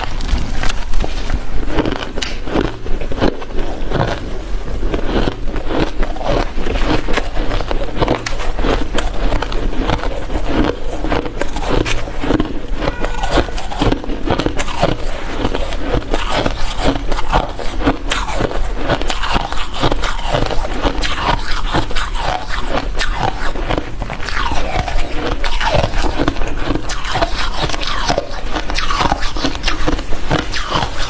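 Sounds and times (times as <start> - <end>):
ice crunching while chewed: 0.0 - 31.0
ice squeaking: 12.8 - 14.0.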